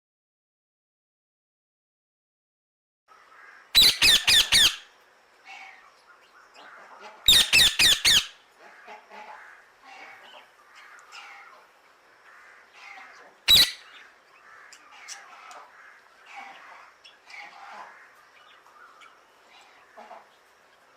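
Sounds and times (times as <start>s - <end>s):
parrot harsh squawks: 3.7s - 4.9s, 7.2s - 8.4s, 12.8s - 14.0s.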